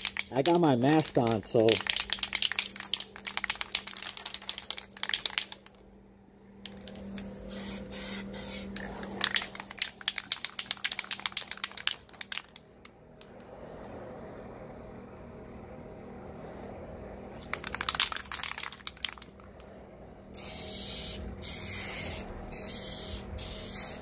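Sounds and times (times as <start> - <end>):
spray paint hissing: 0.0 - 5.7, 6.7 - 12.5, 20.3 - 24.0
spray can ball rattling: 0.0 - 5.8, 6.6 - 12.6, 17.4 - 19.5, 20.4 - 24.0
faint low hum: 0.0 - 24.0.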